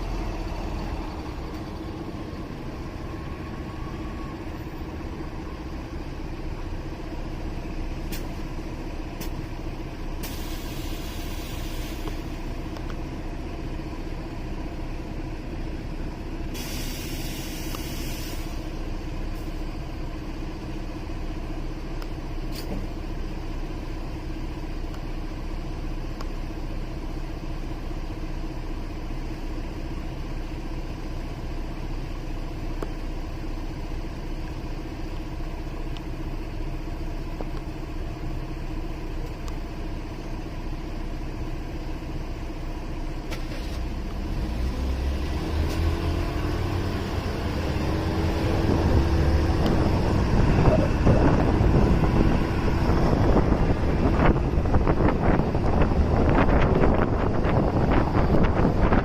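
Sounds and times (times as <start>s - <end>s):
motorcycle engine idling and revving: 0.0s - 10.2s, 18.6s - 59.0s.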